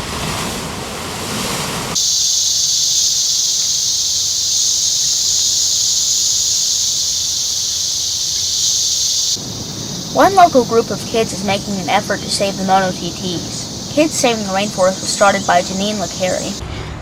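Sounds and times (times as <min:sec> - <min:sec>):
rushing ambience: 0:00.9 - 0:17.0
high-pitched insect chorus: 0:02.0 - 0:16.6.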